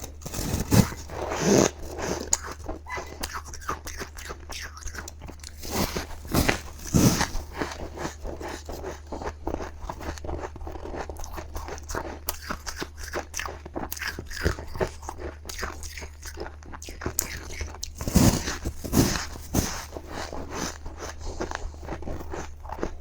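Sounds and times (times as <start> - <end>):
crunching and chewing ice: 0.0 - 23.0.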